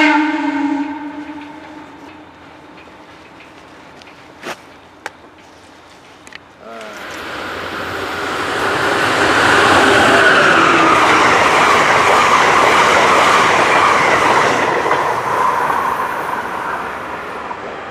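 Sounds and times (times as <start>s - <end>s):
train wheels rumbling and clattering: 1.2s - 17.9s
high wheel squeal: 6.8s - 17.4s.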